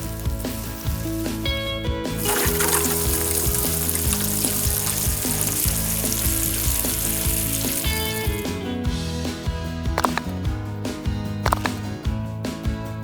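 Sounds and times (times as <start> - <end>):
sizzling hiss: 0.0 - 1.4, 2.1 - 8.6
background music: 0.0 - 13.0.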